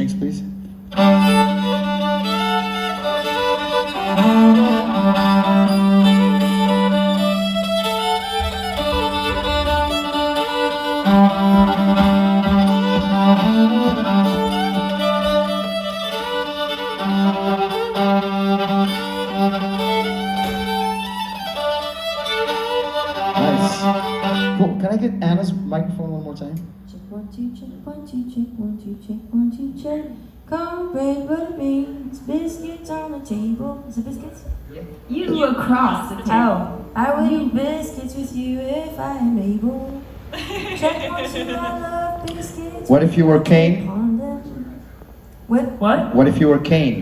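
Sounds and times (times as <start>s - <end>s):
fiddle long low notes: 0.0s - 26.6s
string band playing: 0.0s - 26.9s, 40.0s - 47.0s.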